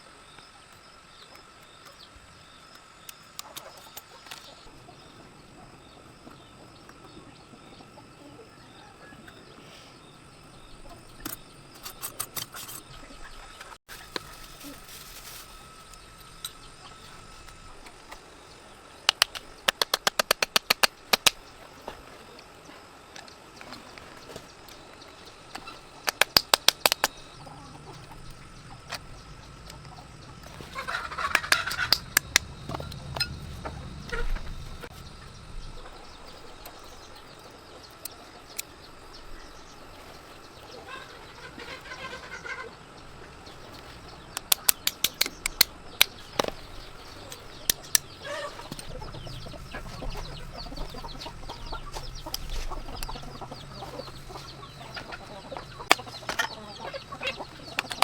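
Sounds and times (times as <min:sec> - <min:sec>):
chickens clucking: 0:03.0 - 0:58.0
rapid sharp taps: 0:19.1 - 0:21.4.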